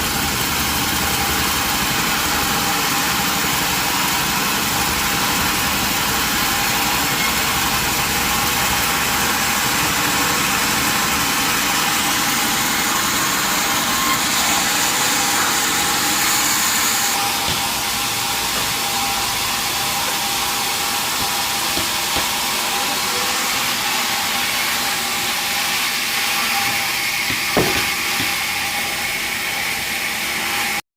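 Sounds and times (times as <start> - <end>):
sawmill machinery running: 0.0 - 30.8
knock: 17.4 - 17.7, 26.6 - 28.4.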